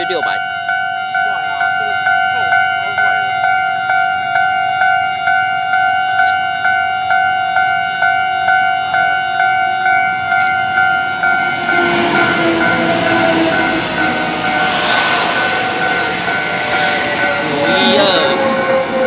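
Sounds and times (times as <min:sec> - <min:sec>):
level-crossing warning bell: 0:00.0 - 0:19.0
train rolling rumble: 0:10.1 - 0:19.0.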